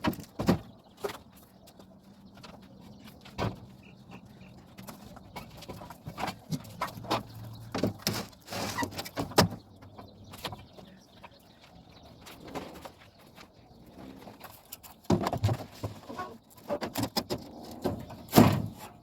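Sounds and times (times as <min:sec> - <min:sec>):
objects knocking and scraping: 0:04.6 - 0:10.9, 0:12.2 - 0:19.0.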